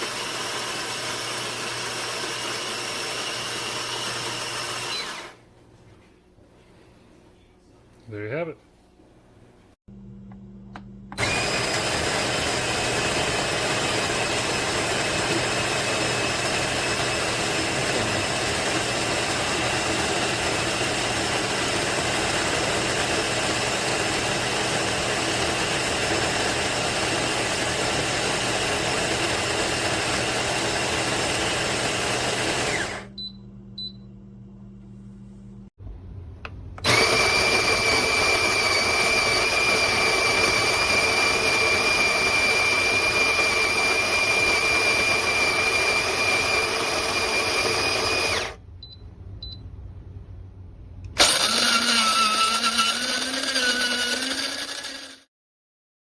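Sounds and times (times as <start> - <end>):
coffee grinder motor grinding: 0.0 - 5.4, 11.2 - 33.1, 36.8 - 48.6, 51.2 - 55.3.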